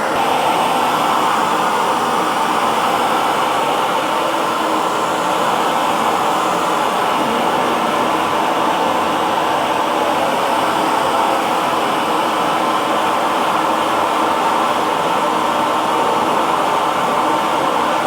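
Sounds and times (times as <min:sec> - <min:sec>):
hair dryer running: 0:00.0 - 0:18.0.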